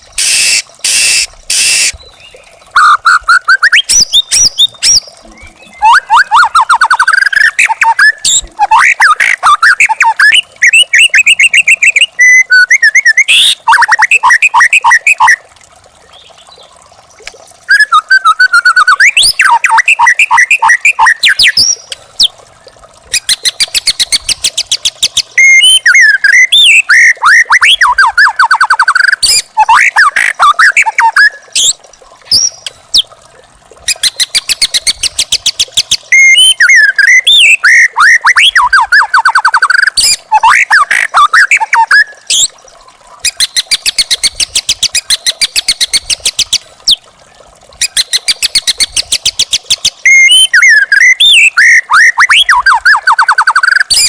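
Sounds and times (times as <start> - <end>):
songbird singing whistled phrases: 0.2 - 15.4, 17.7 - 22.3, 23.1 - 32.7, 33.9 - 42.5, 49.8 - 54.0.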